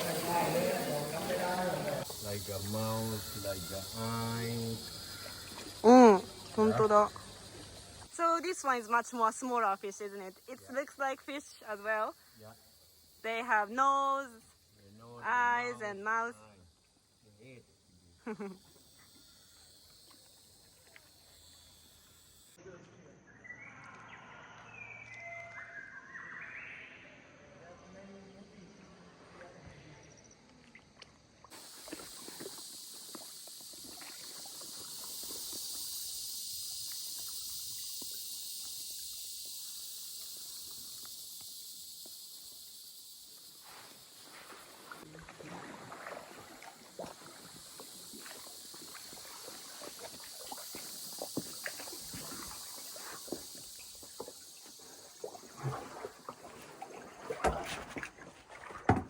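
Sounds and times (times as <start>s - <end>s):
paddles splashing in water: 0.0s - 8.2s, 31.5s - 35.4s, 44.1s - 59.0s
high-pitched insect chorus: 0.0s - 59.0s.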